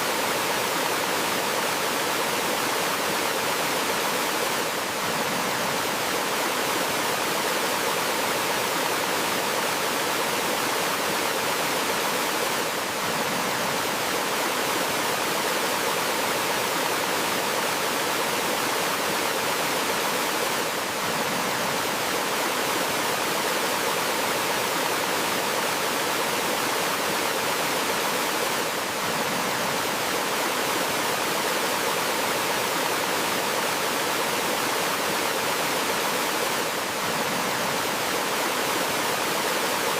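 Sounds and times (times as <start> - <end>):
water rushing from small waterfall: 0.0 - 39.9.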